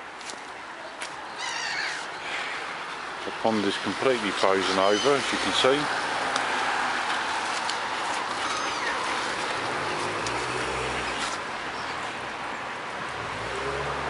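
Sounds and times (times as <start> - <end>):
distant traffic: 0.0 - 14.0
passing vehicle engine hum: 5.3 - 14.0.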